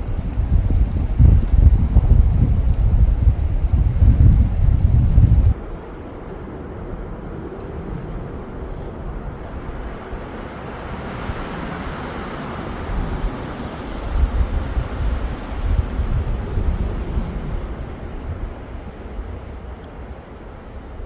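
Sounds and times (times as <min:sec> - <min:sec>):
low rumble: 0:00.0 - 0:05.6
steady rushing noise: 0:00.0 - 0:20.2.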